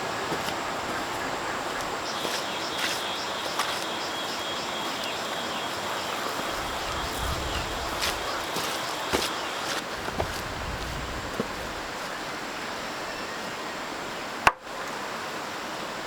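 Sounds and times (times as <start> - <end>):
background hiss: 0.0 - 16.0
bird chirping: 1.0 - 9.8.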